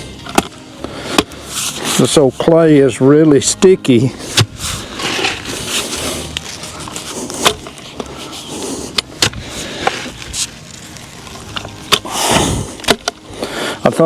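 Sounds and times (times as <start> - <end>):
digger blades scraping clay: 0.3 - 2.8, 4.1 - 10.6.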